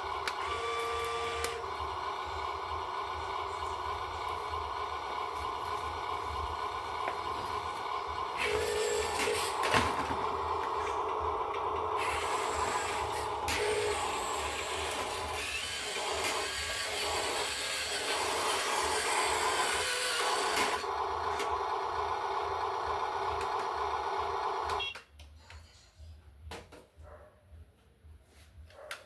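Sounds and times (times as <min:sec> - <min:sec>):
machine running with a hiss: 0:11.9 - 0:20.9.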